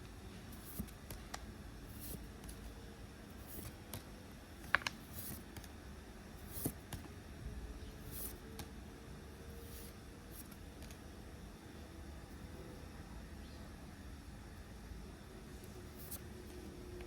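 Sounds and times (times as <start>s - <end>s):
cards sliding swishes: 3.4s - 4.0s, 4.6s - 5.7s, 6.4s - 7.1s, 8.0s - 8.7s, 15.9s - 16.3s.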